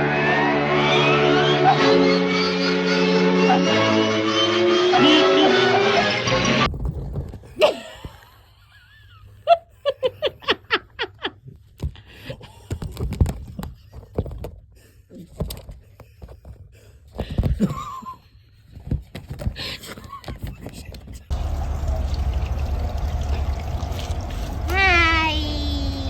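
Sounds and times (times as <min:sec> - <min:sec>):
knocks and rustles: 0:06.7 - 0:07.5.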